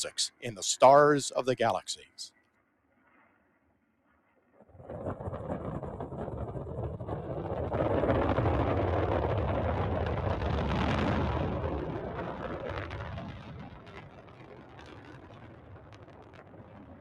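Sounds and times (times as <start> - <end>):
rocket engine roar: 4.8 - 17.0.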